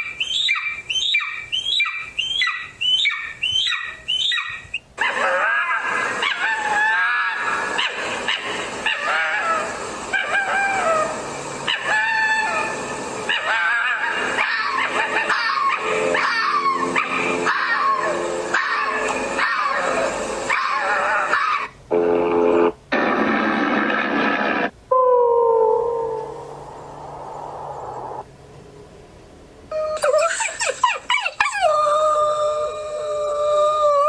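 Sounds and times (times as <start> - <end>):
dogs barking and howling: 0.0 - 21.8, 30.0 - 33.0.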